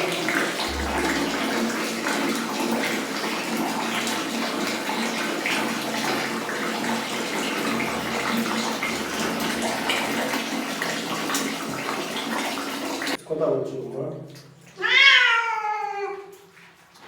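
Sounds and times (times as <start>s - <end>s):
water running from tap into bath: 0.0s - 13.2s.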